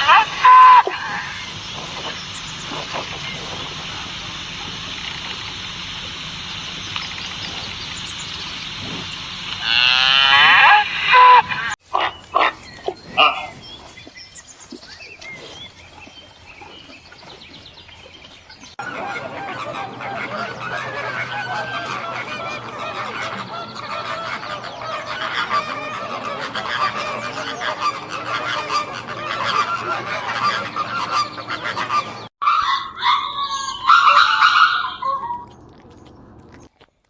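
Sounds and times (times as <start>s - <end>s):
cow mooing: 0.0s - 11.8s
short loud animal calls: 0.0s - 11.8s.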